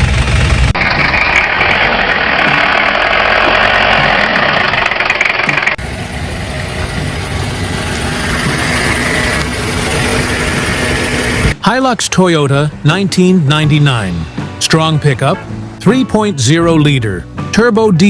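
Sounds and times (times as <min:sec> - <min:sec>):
engine running: 0:00.0 - 0:11.6
pickup truck engine idling: 0:00.0 - 0:11.6.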